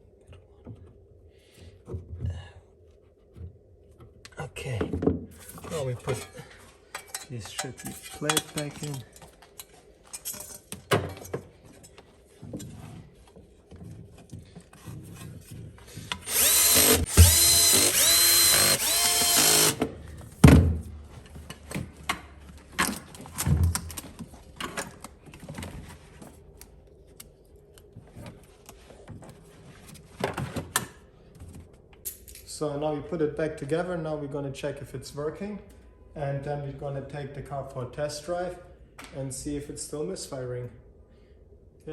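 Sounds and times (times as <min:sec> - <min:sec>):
cordless drill driving screws: 0:16.1 - 0:19.9.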